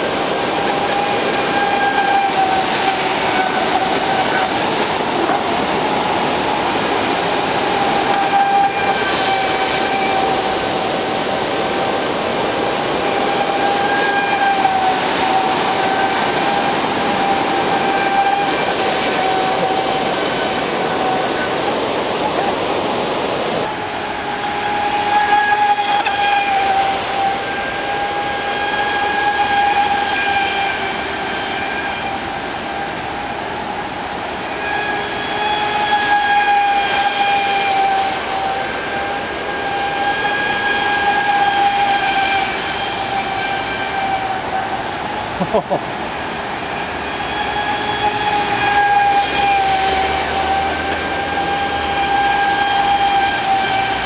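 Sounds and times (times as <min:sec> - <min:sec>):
rushing noise: 0:00.0 - 0:54.0
electric motor whining: 0:23.6 - 0:54.0.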